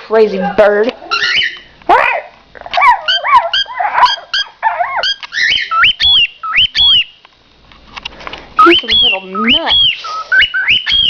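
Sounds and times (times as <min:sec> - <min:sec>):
pet birds chirping and whistling: 0:01.1 - 0:07.3, 0:08.6 - 0:11.0.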